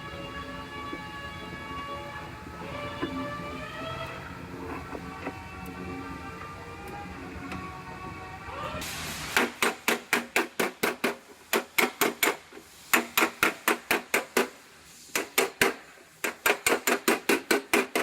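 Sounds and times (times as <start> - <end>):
music: 0.0 - 8.8.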